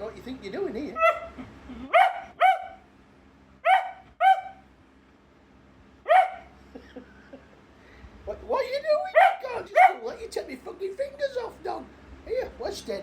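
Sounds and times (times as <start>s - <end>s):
dog barking: 1.0s - 2.9s, 3.6s - 4.7s, 6.0s - 6.6s, 9.1s - 10.2s.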